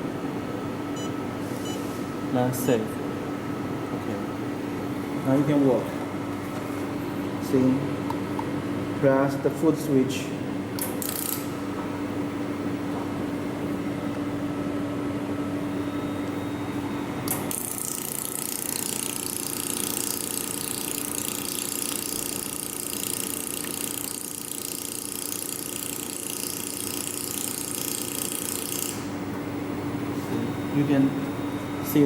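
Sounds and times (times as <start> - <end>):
machine humming: 0.0 - 32.0
laser welder hiss and crackle: 17.5 - 29.1.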